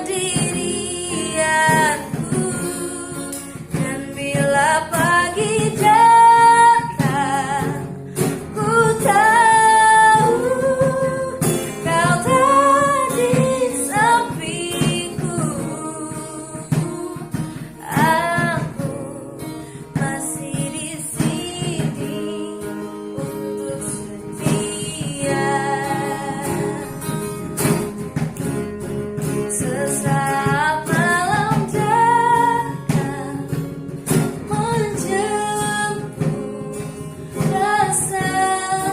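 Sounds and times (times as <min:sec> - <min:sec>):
woman singing slowly: 0:00.0 - 0:27.4, 0:29.5 - 0:33.7, 0:34.4 - 0:38.9
acoustic guitar: 0:00.0 - 0:38.9.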